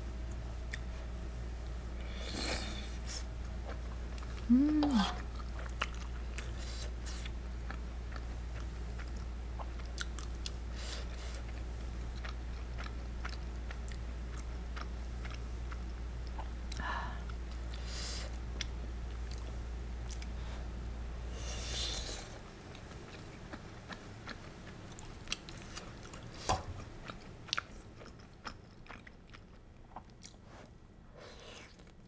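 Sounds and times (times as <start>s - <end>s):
air conditioner hum: 0.0s - 32.0s
wet chewing: 2.6s - 16.8s.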